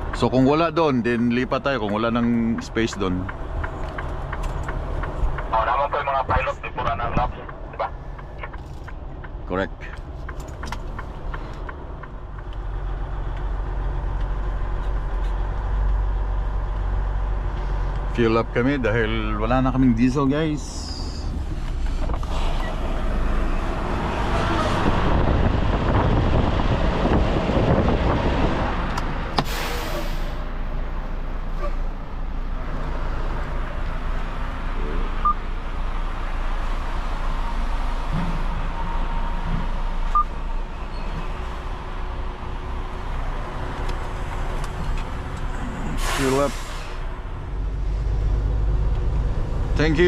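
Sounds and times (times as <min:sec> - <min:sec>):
road noise: 0:00.0 - 0:50.0
truck rumbling at low speed: 0:00.0 - 0:50.0
sharp air hiss: 0:29.4 - 0:30.5, 0:46.0 - 0:47.1.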